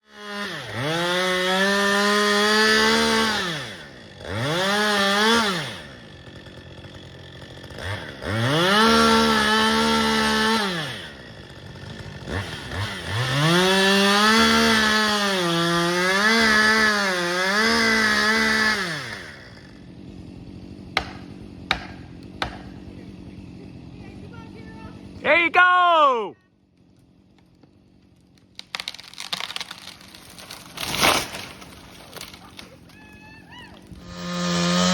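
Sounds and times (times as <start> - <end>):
chainsaw revving: 0.0 - 25.4, 26.8 - 32.9, 33.8 - 34.9
sharp knocks: 21.0 - 22.7.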